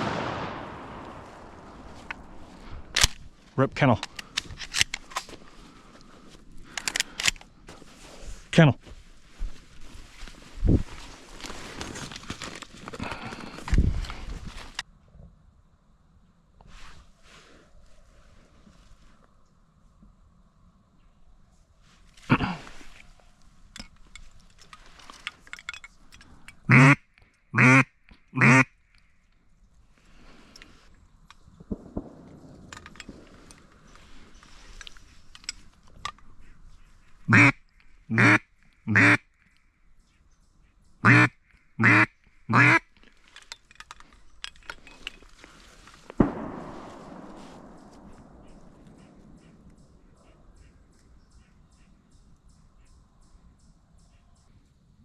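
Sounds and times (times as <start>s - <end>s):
sharp bang: 0.0s - 2.5s
faint clicks and rustles: 0.9s - 14.9s, 21.5s - 27.4s, 29.0s - 38.0s, 42.9s - 51.6s
duck quacks: 26.7s - 27.0s, 27.6s - 28.7s, 37.3s - 39.2s, 41.0s - 42.8s.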